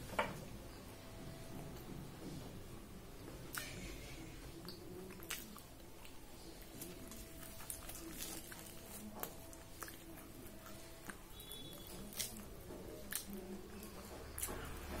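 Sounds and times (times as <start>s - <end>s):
mouth clicks and smacks: 3.5s - 3.8s
person chewing fried food: 3.5s - 15.0s.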